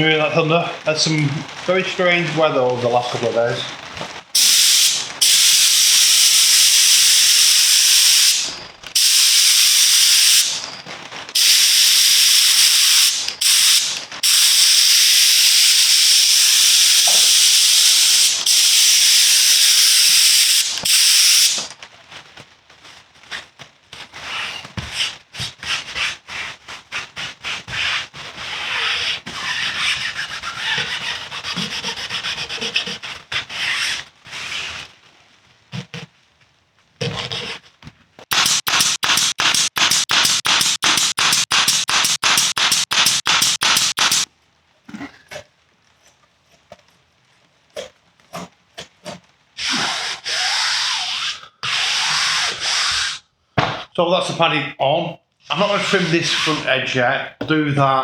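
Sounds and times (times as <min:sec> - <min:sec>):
spray gun hissing: 0:04.4 - 0:10.8, 0:11.4 - 0:21.8, 0:38.3 - 0:44.3, 0:55.5 - 0:56.7
scratchy rubbing strokes: 0:24.2 - 0:34.9, 0:49.6 - 0:53.2, 0:55.5 - 0:56.8.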